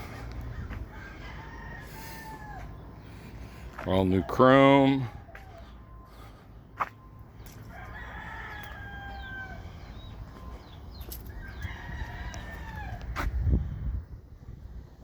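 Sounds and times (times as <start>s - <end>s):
rooster crowing: 0.6s - 2.8s, 7.7s - 9.8s, 11.3s - 13.3s
steady low rumble: 9.2s - 15.0s.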